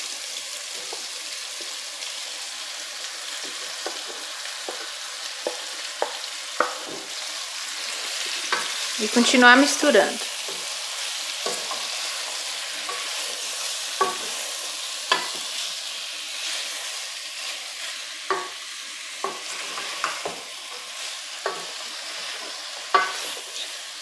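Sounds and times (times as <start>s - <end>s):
meat and vegetables sizzling in pan: 0.0s - 24.0s
wooden spoon knocking on pan: 3.4s - 7.2s, 14.0s - 14.3s, 15.1s - 15.4s, 18.3s - 18.6s, 21.4s - 21.8s.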